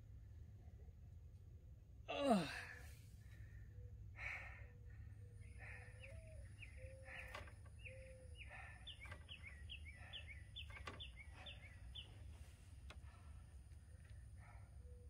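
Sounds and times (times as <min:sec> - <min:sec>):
faint bird chirps: 0:03.2 - 0:15.0.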